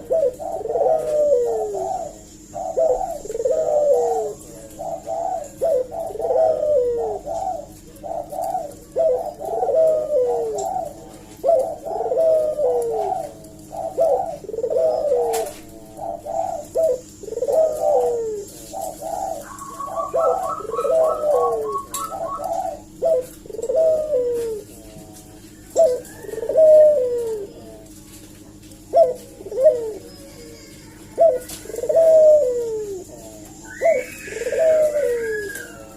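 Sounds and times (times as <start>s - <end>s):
dove cooing: 0.0s - 35.9s
high chirping notes: 18.3s - 24.0s.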